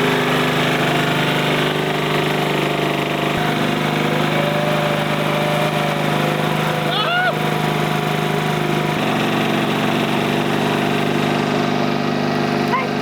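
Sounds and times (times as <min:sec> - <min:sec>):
riding lawn mower engine running: 0:00.0 - 0:13.0.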